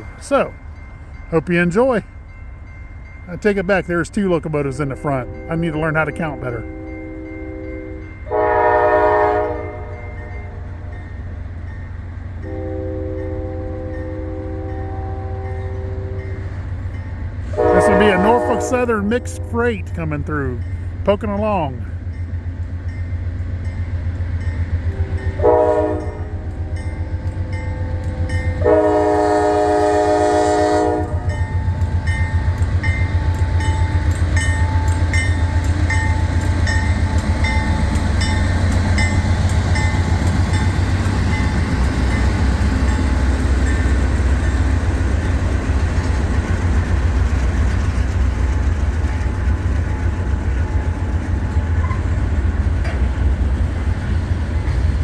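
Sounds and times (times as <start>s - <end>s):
train horn blasts: 6.4s - 10.9s, 12.4s - 16.4s, 17.4s - 20.0s, 24.9s - 27.0s, 27.8s - 31.4s
diesel engines rumbling: 15.3s - 55.0s
train wheels clacking over rail joints: 31.3s - 55.0s.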